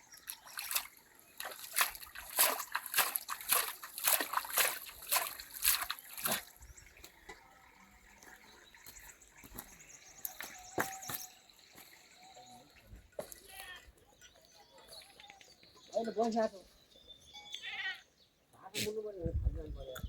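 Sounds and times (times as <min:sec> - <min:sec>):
water splashing and sloshing: 0:00.0 - 0:13.9
water dripping: 0:00.0 - 0:15.7.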